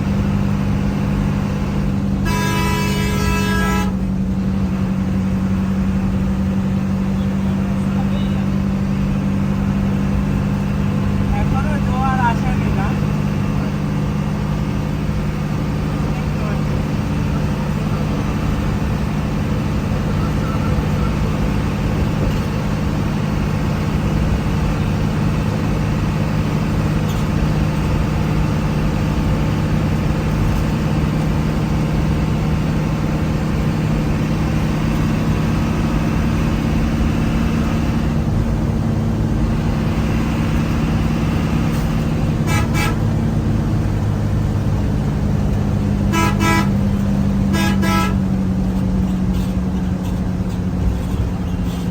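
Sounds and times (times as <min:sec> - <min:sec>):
vehicle engine and road noise: 0:00.0 - 0:51.9
vehicle horn tooting: 0:02.2 - 0:04.0, 0:42.4 - 0:43.1, 0:46.1 - 0:46.9, 0:47.5 - 0:48.3.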